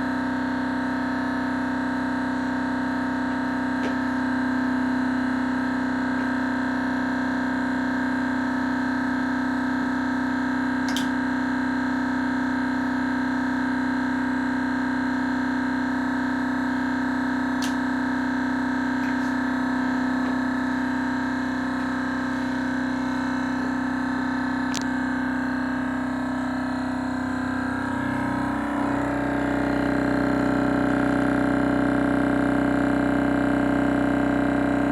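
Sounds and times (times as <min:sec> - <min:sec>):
engine low steady hum: 0:18.9 - 0:32.8.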